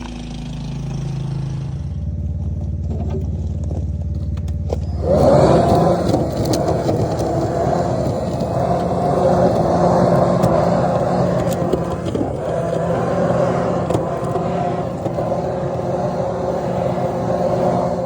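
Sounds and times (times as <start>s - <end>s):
motor-driven machine humming: 0.0s - 18.0s
rushing air noise: 4.8s - 18.0s.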